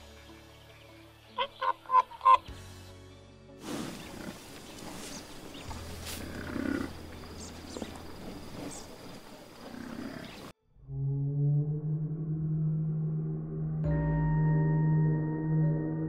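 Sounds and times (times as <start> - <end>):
wildebeest calling: 1.4 - 2.5, 3.8 - 8.0, 9.6 - 10.5
low humming tone: 10.6 - 16.0.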